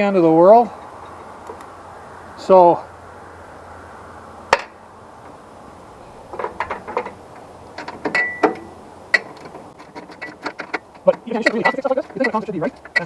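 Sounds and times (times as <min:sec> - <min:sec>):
metallic clicks and knocks: 0:06.3 - 0:13.0.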